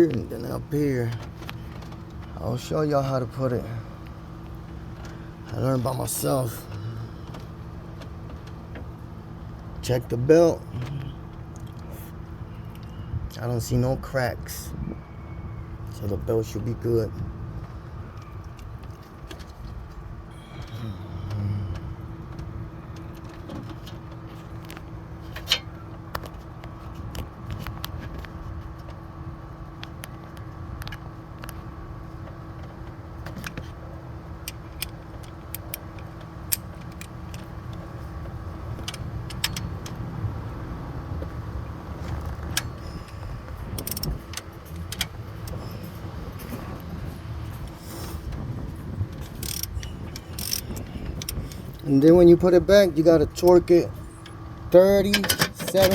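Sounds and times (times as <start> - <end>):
steady low hum: 0.0 - 55.9
metal tools clinking on engine: 38.8 - 40.0, 42.4 - 46.8, 49.2 - 55.9.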